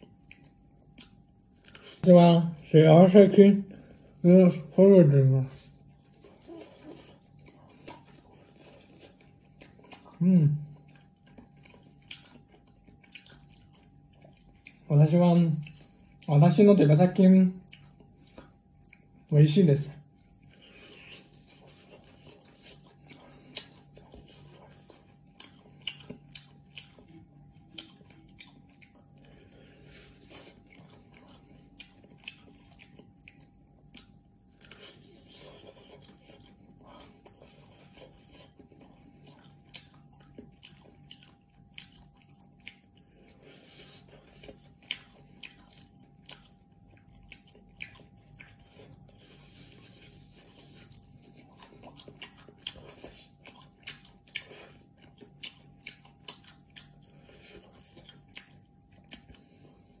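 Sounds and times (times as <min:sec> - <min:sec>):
close chewing and biting: 0:00.0 - 1:00.0.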